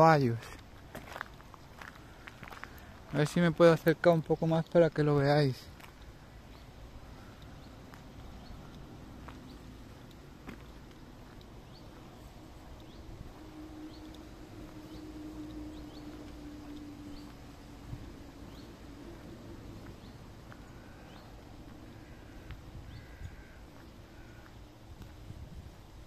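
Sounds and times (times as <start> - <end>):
faint steady hum: 5.2 - 26.0
low steady rumble: 5.4 - 26.0
bird chirping: 5.6 - 24.7.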